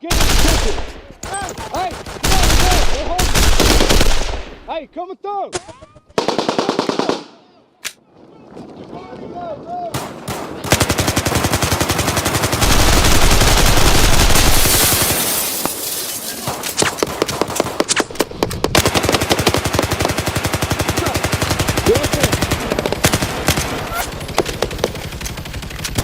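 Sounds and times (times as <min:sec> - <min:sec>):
automatic gunfire: 0:00.0 - 0:04.7, 0:06.2 - 0:07.3, 0:10.0 - 0:15.1, 0:16.5 - 0:26.0.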